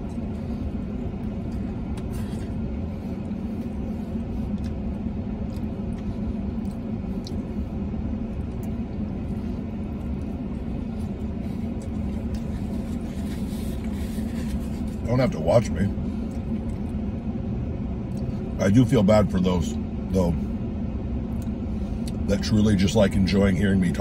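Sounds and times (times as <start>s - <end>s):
man chewing food: 0.0s - 15.0s, 16.0s - 18.5s
low rumble inside car: 0.0s - 24.0s.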